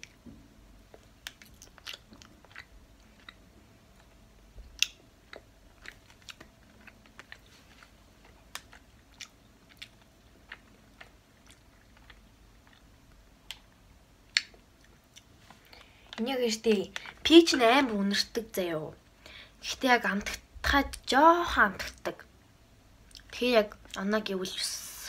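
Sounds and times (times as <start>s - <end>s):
person chewing candy: 0.8s - 17.2s, 23.0s - 24.0s
mouth clicks and smacks: 0.9s - 16.3s.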